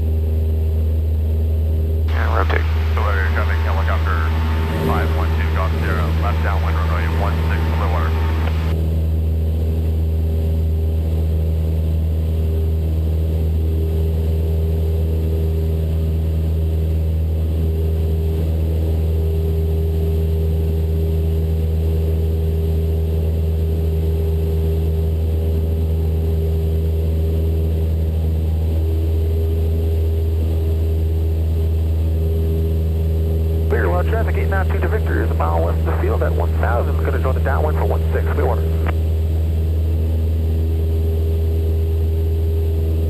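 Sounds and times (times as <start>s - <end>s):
light aircraft engine droning: 0.0s - 43.0s.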